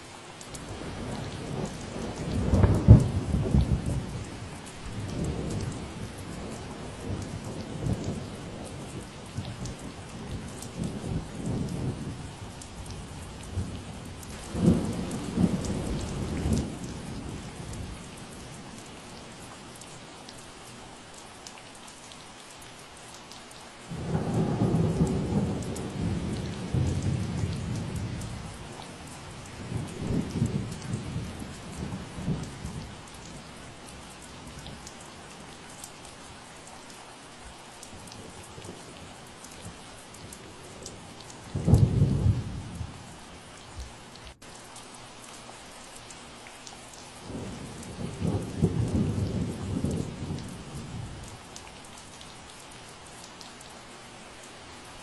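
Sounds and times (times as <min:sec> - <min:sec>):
steady rain falling: 0:00.0 - 0:55.0
thunder rumbling: 0:12.9 - 0:18.1, 0:23.9 - 0:33.5, 0:40.2 - 0:43.2, 0:47.2 - 0:51.4.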